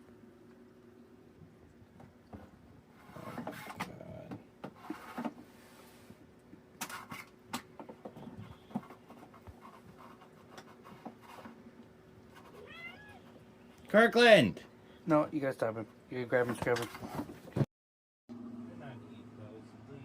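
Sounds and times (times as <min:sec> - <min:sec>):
cat scratching in cardboard box: 0:08.0 - 0:12.8.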